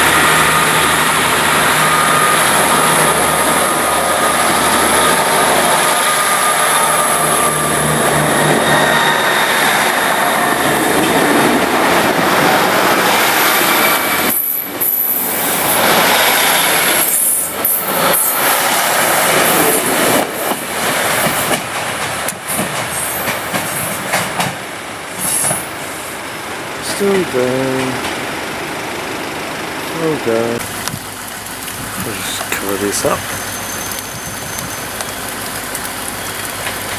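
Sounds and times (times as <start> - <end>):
train passing on rails: 0.0 - 36.9
wheel squealing: 0.1 - 11.6, 33.2 - 35.2
train wheels clattering: 0.2 - 24.6.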